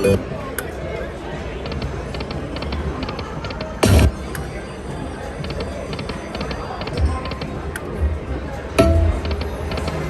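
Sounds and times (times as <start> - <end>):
electronic slot machine music: 0.0 - 0.6, 8.8 - 10.0
low casino background rumble: 0.0 - 10.0.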